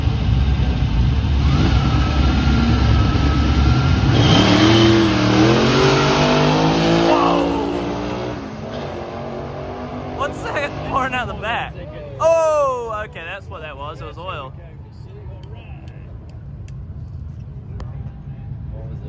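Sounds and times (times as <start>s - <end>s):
drag car engine at full throttle: 0.0s - 12.1s.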